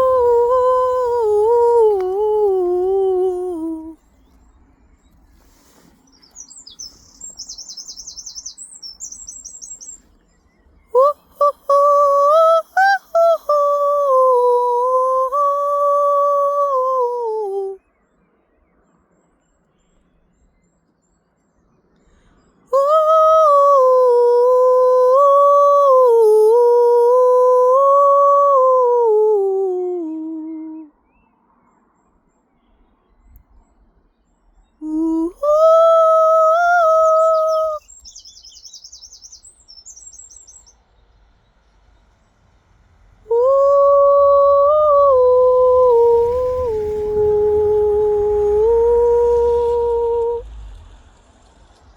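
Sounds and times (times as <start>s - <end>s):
person toning long notes: 0.0s - 4.0s, 43.2s - 50.7s
bird warbling: 6.1s - 10.1s.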